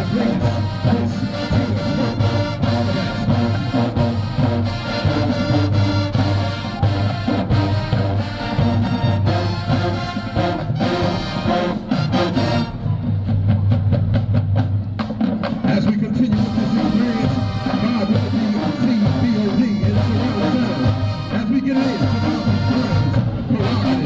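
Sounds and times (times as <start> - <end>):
brass instruments: 0.0 - 24.0
marching band playing: 0.0 - 24.0.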